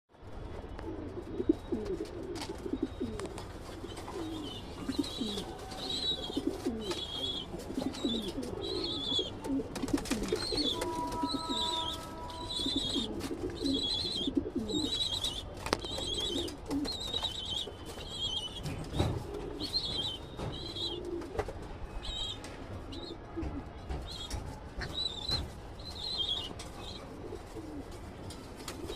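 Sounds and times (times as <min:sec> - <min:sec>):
pigeons cooing: 0:00.9 - 0:21.4, 0:26.0 - 0:28.0
high chirping call: 0:10.3 - 0:18.6.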